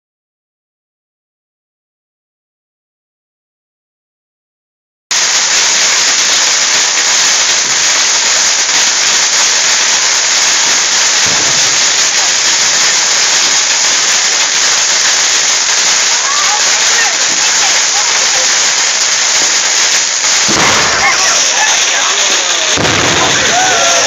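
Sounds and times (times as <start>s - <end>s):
loud steady hiss: 5.1s - 24.0s.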